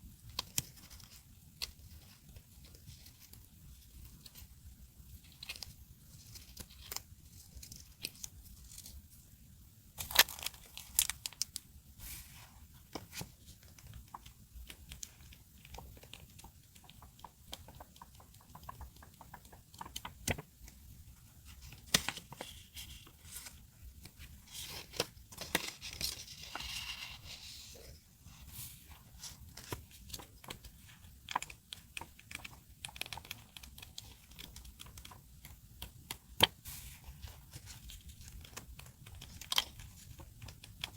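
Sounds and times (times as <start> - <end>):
small taps and clicks: 13.7 - 20.8.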